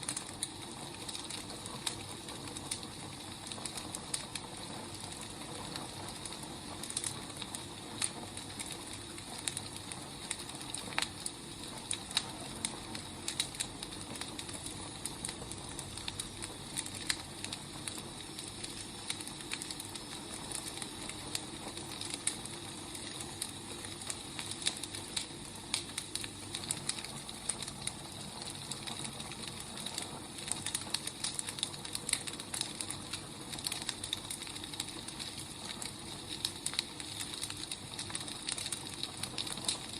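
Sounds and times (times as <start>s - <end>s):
firewood burning: 0.0s - 39.9s.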